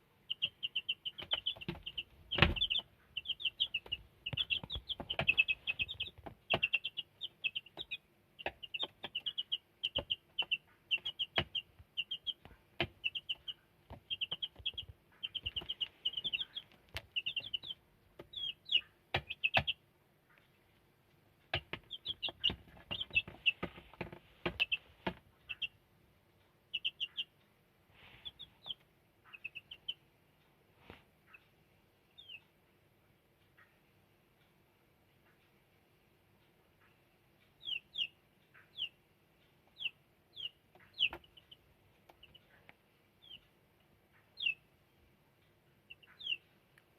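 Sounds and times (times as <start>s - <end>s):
chicks peeping: 0.1s - 20.8s, 21.4s - 32.6s, 36.4s - 46.9s
sharp knocks: 1.2s - 2.8s.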